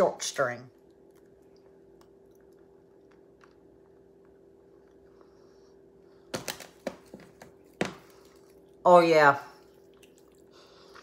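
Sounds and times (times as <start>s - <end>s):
steady faint hum: 0.0s - 11.0s
faint chewing: 0.7s - 6.3s, 9.5s - 11.0s.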